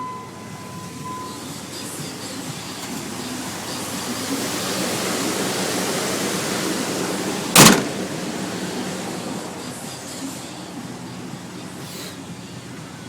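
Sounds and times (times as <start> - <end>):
truck engine idling: 0.0 - 13.0
sharp loud thump: 7.6 - 8.0.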